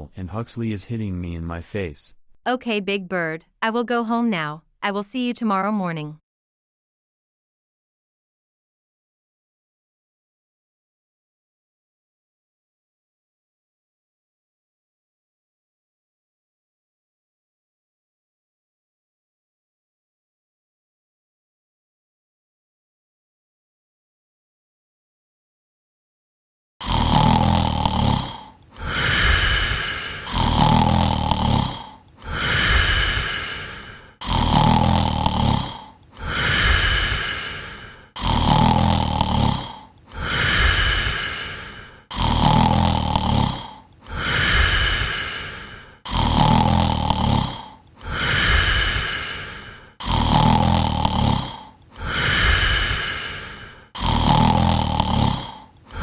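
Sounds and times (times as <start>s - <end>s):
rattling snoring: 26.8s - 56.0s.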